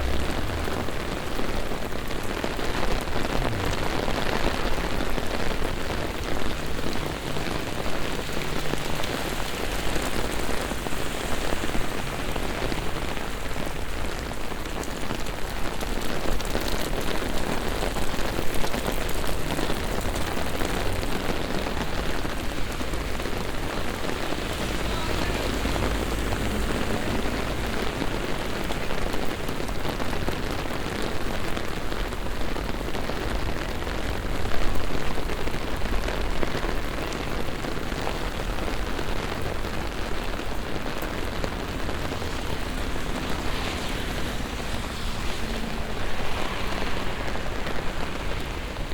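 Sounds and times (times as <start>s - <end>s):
low rumble: 0.0s - 2.4s
rain falling on streets: 0.0s - 48.9s.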